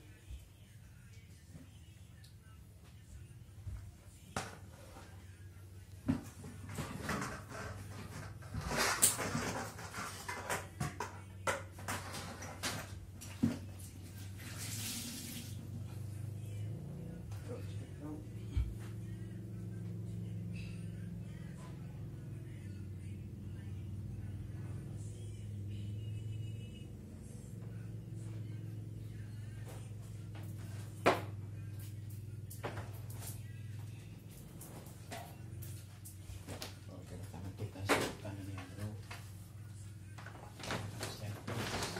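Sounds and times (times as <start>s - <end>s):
low electrical hum: 10.7s - 41.9s.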